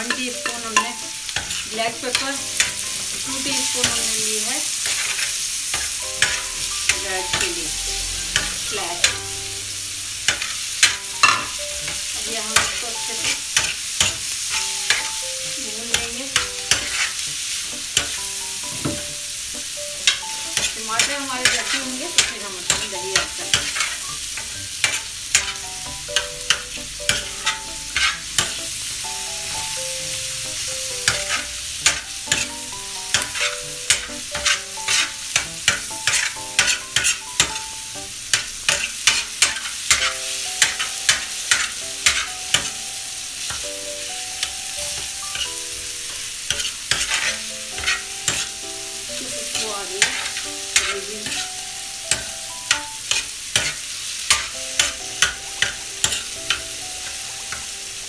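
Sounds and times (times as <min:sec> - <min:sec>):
metal ladle scraping griddle: 0:00.0 - 0:15.2, 0:15.9 - 0:37.7, 0:38.3 - 0:42.8, 0:44.4 - 0:48.6, 0:49.2 - 0:57.6
food sizzling on a griddle: 0:00.0 - 0:58.0.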